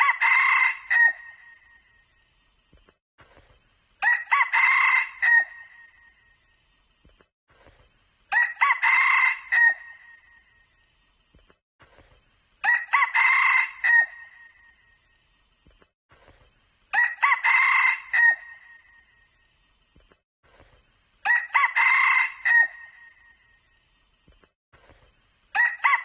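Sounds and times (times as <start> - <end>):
rooster crowing: 0.0 - 1.4, 4.0 - 5.8, 8.3 - 10.1, 12.6 - 14.4, 16.9 - 18.8, 21.2 - 23.2, 25.6 - 26.0.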